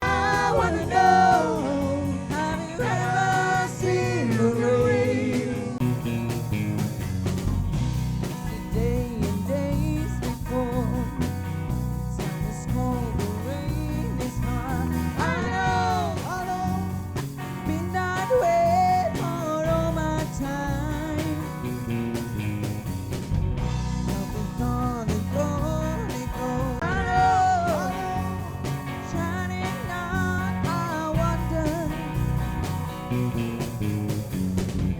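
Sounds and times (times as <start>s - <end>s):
person singing lead vocal: 0.0s - 5.9s, 8.5s - 11.4s, 12.2s - 21.7s, 24.0s - 32.3s
live rock band: 0.0s - 34.9s.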